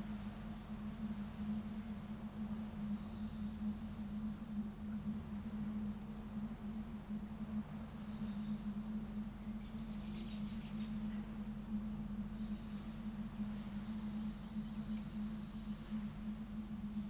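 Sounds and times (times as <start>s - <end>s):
low hum and rumble: 0.0s - 17.0s
small birds trilling: 5.7s - 17.0s.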